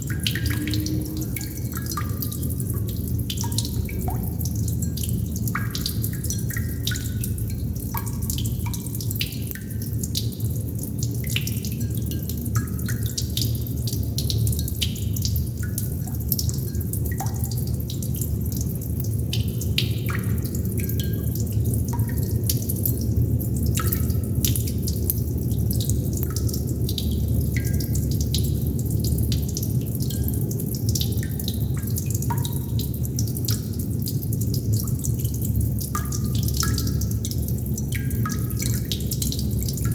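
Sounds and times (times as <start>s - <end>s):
low rumble: 0.0s - 5.9s
water droplets plinking: 0.0s - 9.1s.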